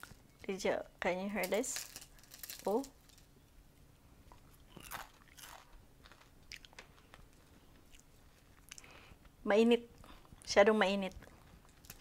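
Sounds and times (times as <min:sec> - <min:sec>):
crunching fried food: 0:01.4 - 0:03.3, 0:04.3 - 0:09.3, 0:11.2 - 0:12.0.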